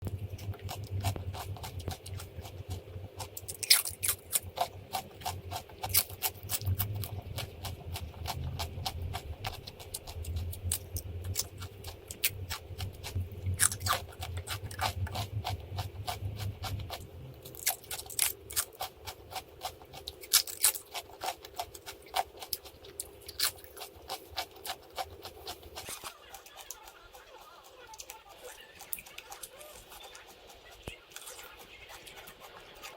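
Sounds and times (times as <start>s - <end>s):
low hum: 0.0s - 20.6s
crunching and chewing food: 0.0s - 32.9s.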